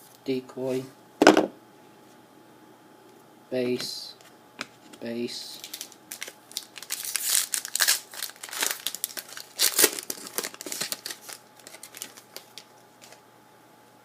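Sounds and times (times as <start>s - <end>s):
wrapper crinkling and tearing: 5.5s - 13.2s.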